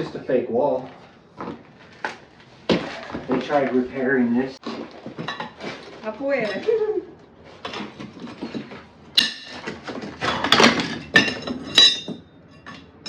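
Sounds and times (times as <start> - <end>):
metal tools knocking on bricks: 5.1 - 6.7, 7.6 - 13.0.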